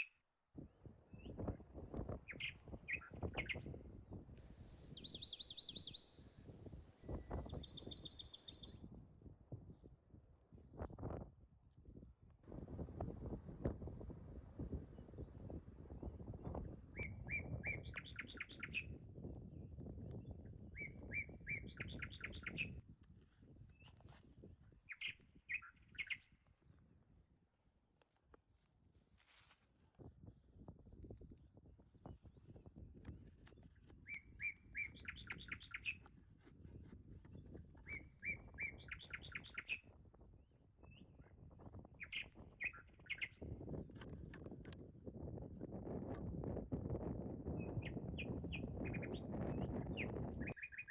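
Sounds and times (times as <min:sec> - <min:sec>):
low wind rumble on microphone: 0:00.5 - 0:50.9
songbird singing: 0:01.1 - 0:03.8, 0:04.4 - 0:08.9, 0:16.5 - 0:22.8, 0:24.8 - 0:26.4, 0:33.4 - 0:36.1, 0:37.3 - 0:40.0, 0:40.8 - 0:43.6, 0:47.5 - 0:50.9.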